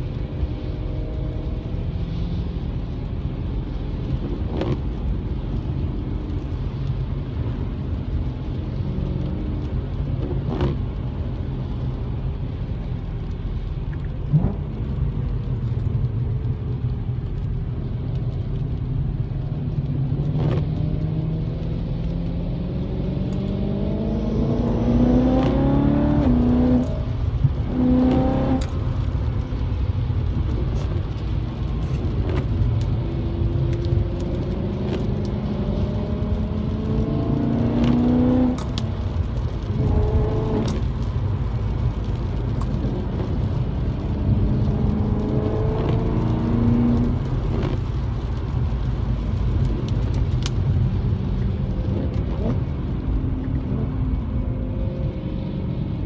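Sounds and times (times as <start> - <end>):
car engine accelerating: 4.0 - 56.0.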